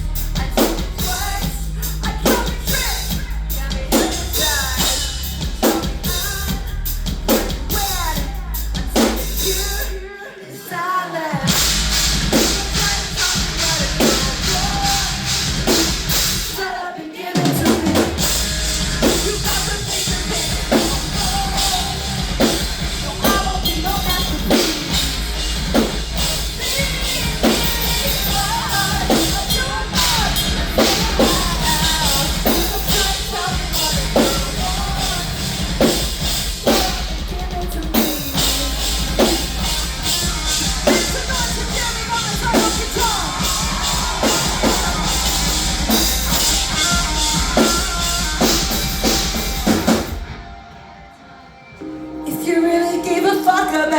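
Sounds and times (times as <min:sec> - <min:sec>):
bass drum and snare beat: 0:00.0 - 0:09.9, 0:11.5 - 0:16.7, 0:17.5 - 0:50.4
live rock band playing: 0:00.0 - 0:10.7, 0:11.3 - 0:53.9.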